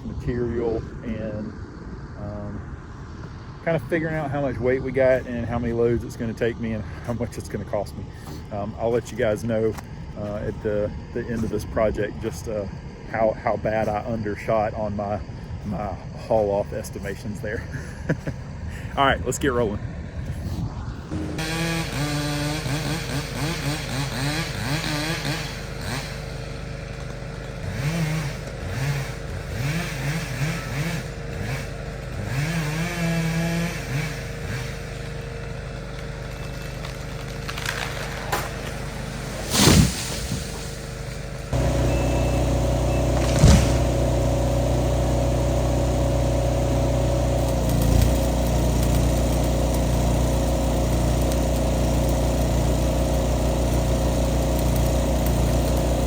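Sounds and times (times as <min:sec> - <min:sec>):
skid steer engine revving: 0:03.4 - 0:56.0
loud bangs: 0:37.8 - 0:44.8.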